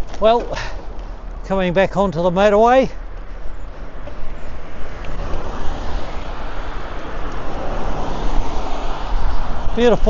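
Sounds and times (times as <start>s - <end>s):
motorway traffic noise: 0.0s - 10.0s
vehicle passing: 2.9s - 10.0s
wind rush: 2.9s - 10.0s.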